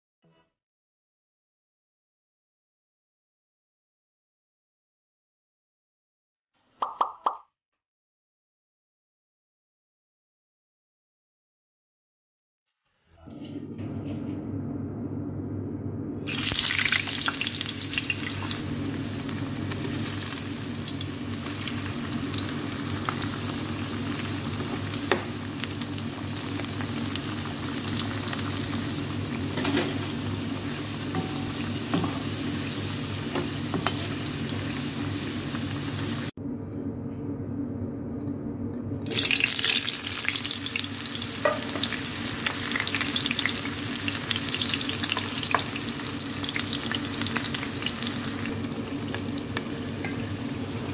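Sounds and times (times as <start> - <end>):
food deep-frying in oil: 16.3 - 36.3, 39.1 - 50.9.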